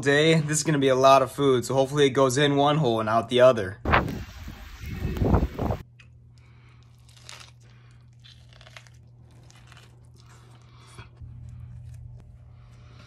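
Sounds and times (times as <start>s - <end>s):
low steady hum: 3.6s - 13.0s
person chewing a sandwich: 5.9s - 13.0s
crunchy crackles: 6.5s - 12.2s.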